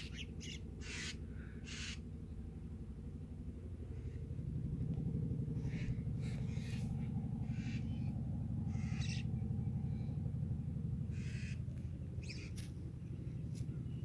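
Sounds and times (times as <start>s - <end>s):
birds giving harsh calls: 0.0s - 2.0s, 7.4s - 8.1s, 8.7s - 9.4s, 11.1s - 12.8s
steady low rumble: 0.1s - 14.0s.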